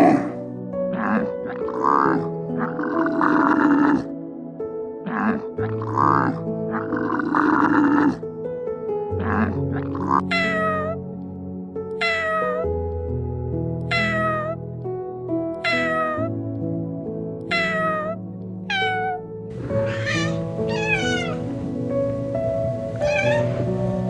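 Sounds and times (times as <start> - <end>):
cat meowing: 0.0 - 0.4, 1.0 - 4.0, 5.1 - 8.2, 9.2 - 11.0, 12.0 - 12.6, 13.9 - 14.6, 15.6 - 16.3, 17.5 - 21.6, 22.8 - 24.0
soft background music: 0.0 - 24.0.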